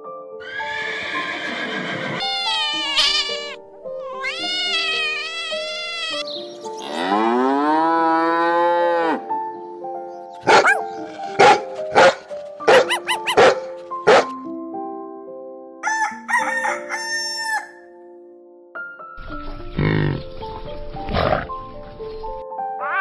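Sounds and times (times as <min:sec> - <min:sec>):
background music: 0:00.0 - 0:23.0
cat meowing: 0:02.1 - 0:06.3
cow mooing: 0:06.8 - 0:09.3
dog barking: 0:10.4 - 0:14.3.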